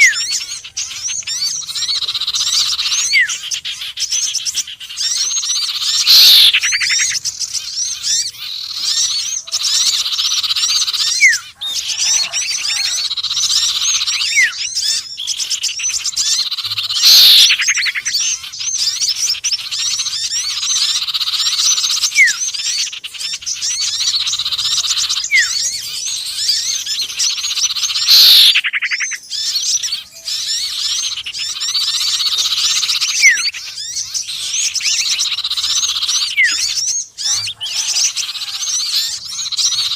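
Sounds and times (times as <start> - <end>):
loud falling bird call: 0.0 - 39.9
songbirds chirping and trilling: 0.0 - 39.9
rising bird call slides: 6.0 - 6.8, 17.0 - 17.6.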